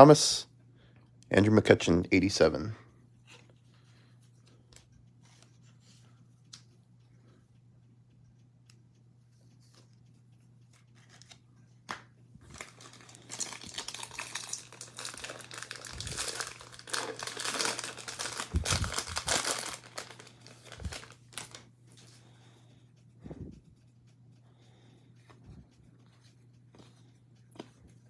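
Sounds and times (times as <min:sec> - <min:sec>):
foil wrapper crinkling and tearing: 0:12.4 - 0:22.1.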